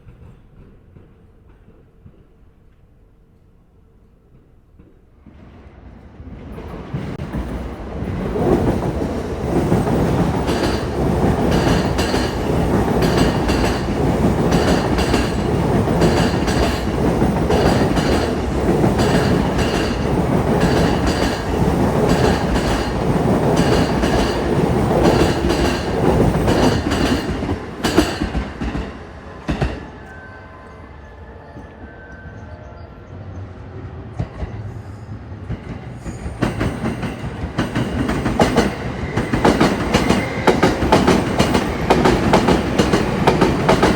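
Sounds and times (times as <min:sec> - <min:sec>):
train wheels clacking over rail joints: 0:08.4 - 0:29.8, 0:36.4 - 0:43.9.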